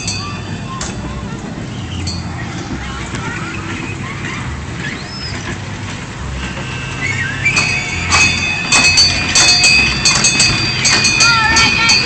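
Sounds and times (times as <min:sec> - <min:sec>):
bell being rung: 0:00.0 - 0:00.7, 0:07.6 - 0:12.0
high steady ringing: 0:00.0 - 0:01.2, 0:07.5 - 0:12.0
ride train rumbling: 0:00.0 - 0:12.0.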